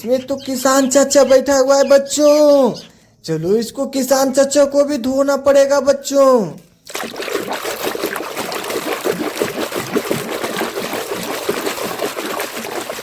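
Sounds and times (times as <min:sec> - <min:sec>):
water splashing and trickling: 0:06.8 - 0:13.0.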